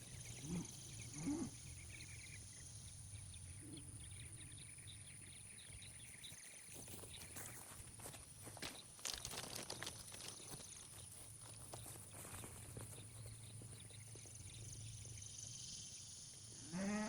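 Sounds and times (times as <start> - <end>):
small birds chirping: 0.0 - 16.9
footsteps in grass: 6.2 - 14.3
cow calling: 16.6 - 17.0.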